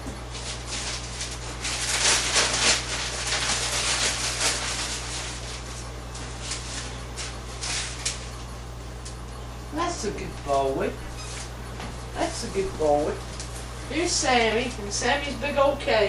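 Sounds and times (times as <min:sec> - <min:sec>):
paper rustling and crinkling: 0:00.0 - 0:08.5
steady low hum: 0:00.0 - 0:16.0.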